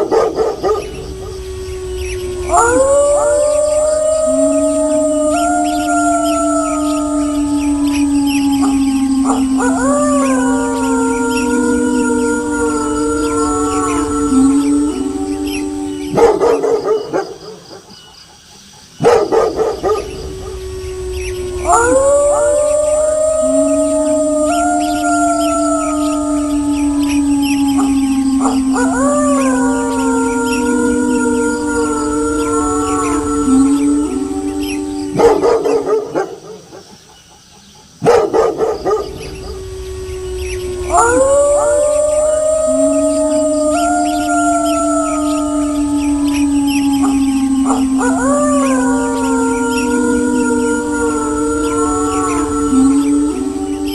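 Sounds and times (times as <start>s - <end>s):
single held howl: 0.0s - 18.0s, 19.0s - 37.0s, 37.9s - 53.9s
wolves howling: 0.0s - 53.9s
dogs barking: 19.0s - 20.2s, 35.1s - 36.9s, 38.0s - 39.2s.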